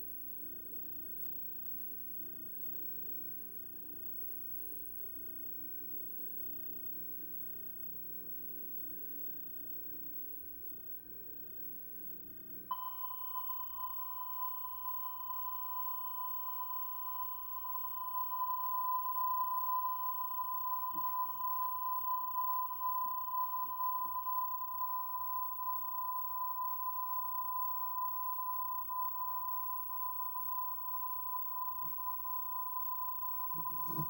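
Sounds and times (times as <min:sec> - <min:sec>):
tape hiss and hum: 0:00.0 - 0:34.0
high-pitched steady tone: 0:12.7 - 0:34.0.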